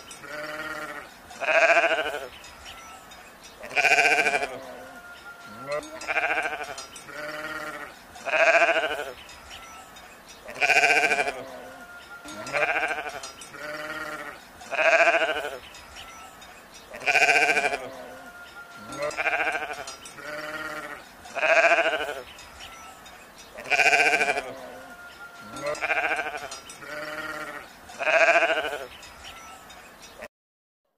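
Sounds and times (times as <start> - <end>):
sheep bleating: 0.2 - 2.3, 3.6 - 9.2, 10.5 - 15.6, 16.9 - 22.3, 23.6 - 28.9.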